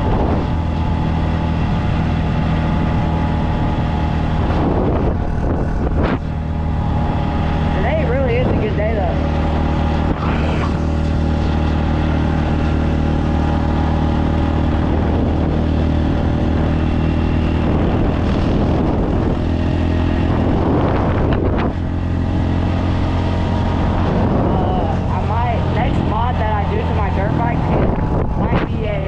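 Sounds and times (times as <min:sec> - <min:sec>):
dirt bike engine cruising: 0:00.0 - 0:29.0.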